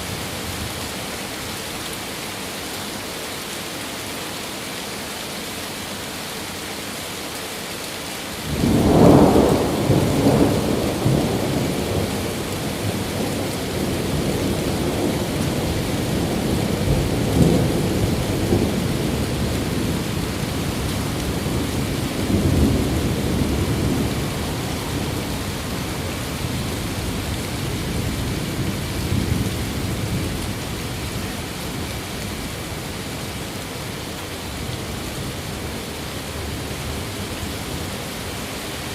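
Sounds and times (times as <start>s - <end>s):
steady rain: 0.0s - 38.9s
thunderclap and rolling rumble: 8.5s - 32.4s.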